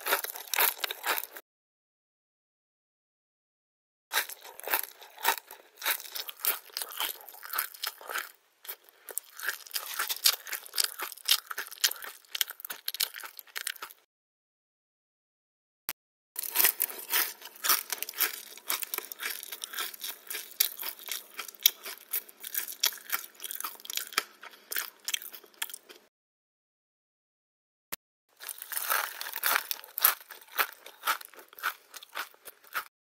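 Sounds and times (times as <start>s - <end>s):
person chewing crunchy food: 0.0s - 1.4s, 4.1s - 14.1s, 16.4s - 26.1s, 28.4s - 32.9s.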